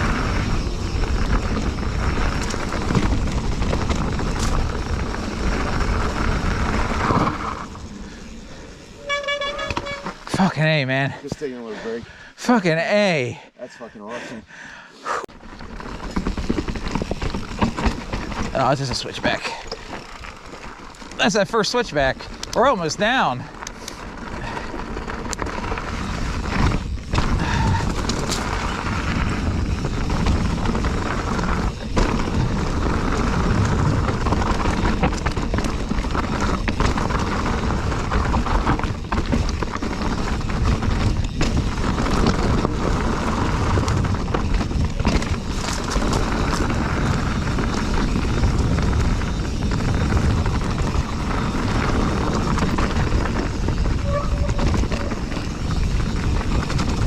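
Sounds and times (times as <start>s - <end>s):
bike knocking and rattling over rocks: 0.0s - 8.5s, 15.3s - 57.0s
rushing bike ride noise: 0.0s - 57.0s.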